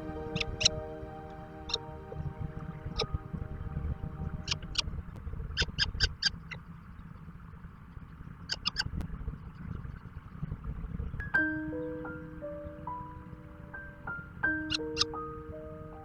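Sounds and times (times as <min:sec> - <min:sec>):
birds chirping: 0:00.0 - 0:06.5
steady low rumble: 0:00.0 - 0:14.1.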